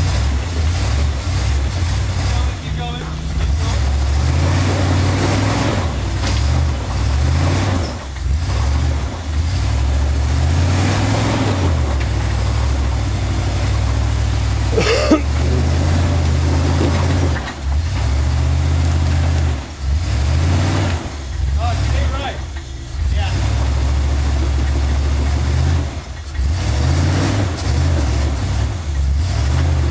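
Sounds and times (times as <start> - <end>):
vehicle engine working hard: 0.0 - 29.9.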